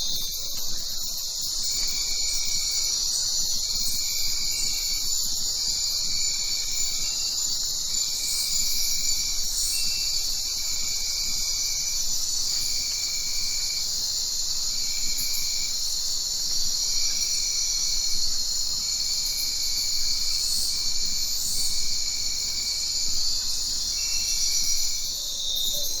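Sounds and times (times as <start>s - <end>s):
low-pitched pulsing insect call: 0.0s - 26.0s.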